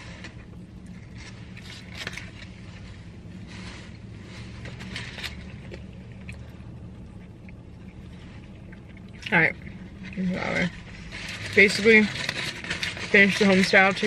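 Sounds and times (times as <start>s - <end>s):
foil wrapper crinkling: 0.0s - 6.5s, 9.7s - 14.0s
low hum inside car: 0.0s - 14.0s
chewing food: 4.0s - 13.1s.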